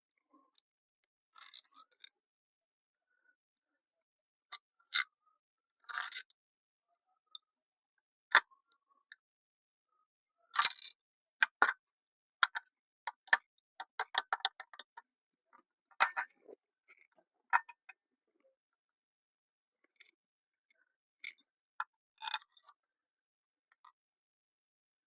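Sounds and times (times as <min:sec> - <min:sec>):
hand tools clinking on engine parts: 0:16.0 - 0:16.4.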